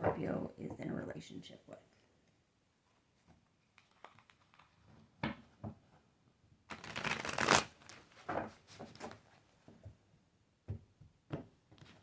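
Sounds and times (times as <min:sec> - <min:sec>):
cards being shuffled: 0:03.8 - 0:04.8, 0:06.7 - 0:08.1.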